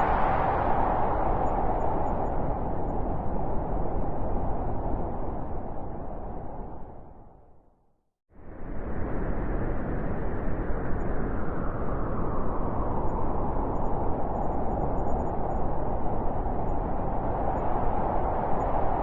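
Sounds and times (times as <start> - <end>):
blizzard wind blowing hard: 0.0 - 7.6, 8.3 - 19.0.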